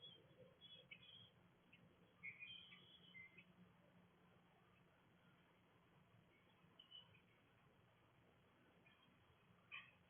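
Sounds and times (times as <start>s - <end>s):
small bird chirps: 0.0s - 3.6s, 6.3s - 7.5s
low steady hum: 0.0s - 10.0s.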